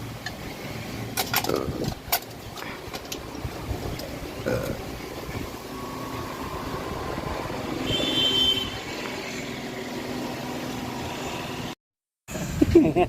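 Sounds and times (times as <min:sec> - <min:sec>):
motor vehicle passing: 0:00.0 - 0:11.8
high-pitched whine: 0:03.0 - 0:11.7.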